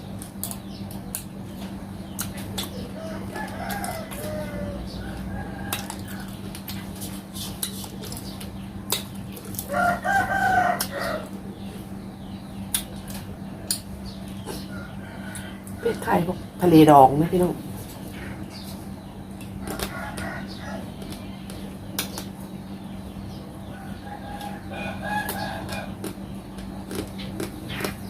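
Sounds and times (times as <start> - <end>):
steady low hum: 0.0 - 28.0
rooster crowing: 2.9 - 6.3, 9.6 - 11.4, 14.7 - 16.2, 19.6 - 20.9, 23.7 - 26.1.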